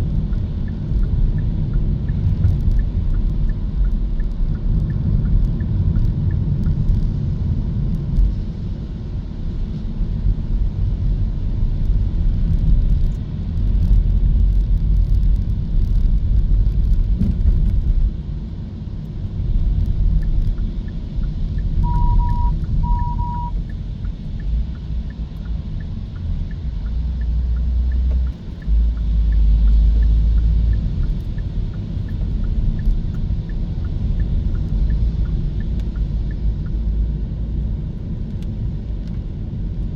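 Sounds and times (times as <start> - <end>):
road and tyre rumble: 0.0 - 39.9
short beeps: 21.8 - 23.6.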